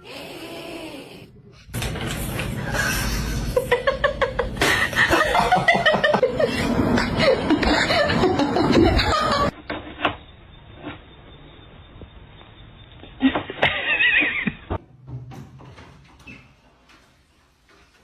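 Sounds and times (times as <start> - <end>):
people laughing: 3.4 - 9.6.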